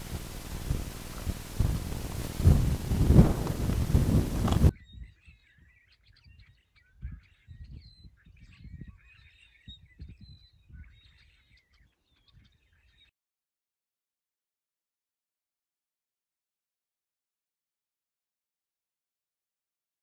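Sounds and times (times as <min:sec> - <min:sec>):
low rumbling: 0:00.0 - 0:04.7
small birds chirping: 0:00.0 - 0:13.1.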